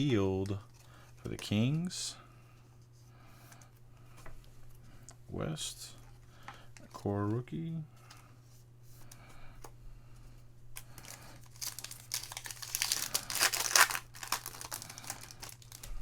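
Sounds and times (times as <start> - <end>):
foil wrapper tearing and crinkling: 10.9 - 15.9.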